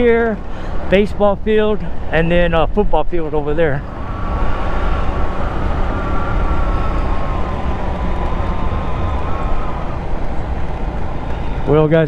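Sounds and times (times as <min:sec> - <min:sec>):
thin whine: 0:00.0 - 0:12.0
wind on microphone: 0:03.8 - 0:11.7
scooter engine running: 0:03.9 - 0:12.0.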